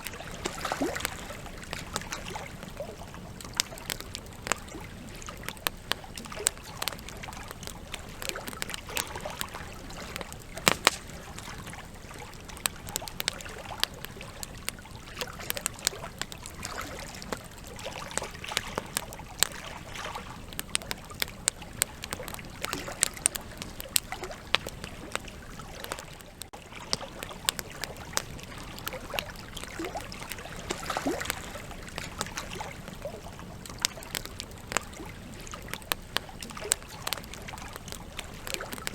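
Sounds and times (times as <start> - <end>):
campfire crackles and pops: 0.0 - 38.9
flames hissing: 10.1 - 11.9.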